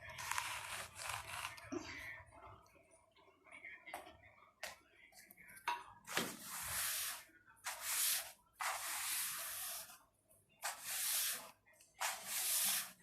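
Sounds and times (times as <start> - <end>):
swishing cleaning strokes: 6.3 - 9.9, 10.6 - 13.0.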